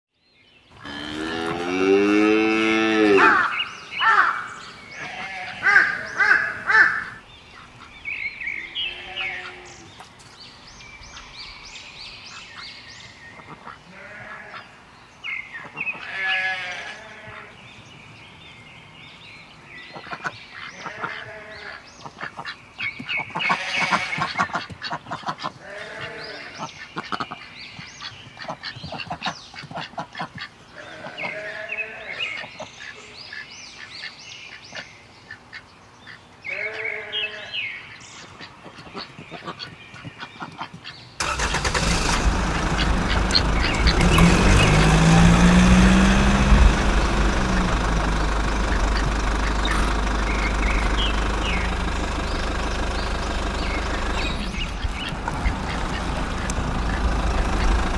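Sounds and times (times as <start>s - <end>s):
long low animal call: 0.8s - 4.4s
geese or ducks honking: 0.8s - 7.9s, 20.0s - 22.6s, 23.2s - 27.4s, 40.4s - 57.9s.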